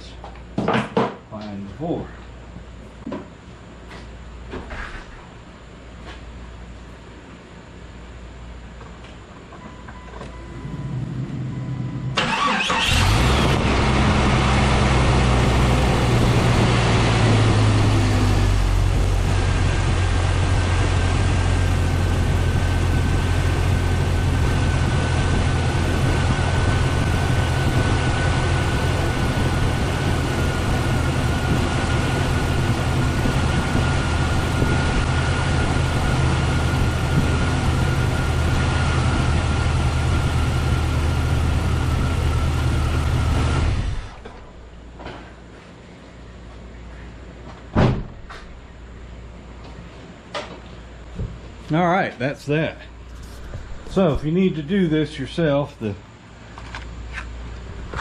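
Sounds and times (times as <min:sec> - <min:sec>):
faint steady whine: 0:01.4 - 0:13.5
car engine idling: 0:12.1 - 0:44.3
car engine cranking and starting: 0:12.1 - 0:44.5.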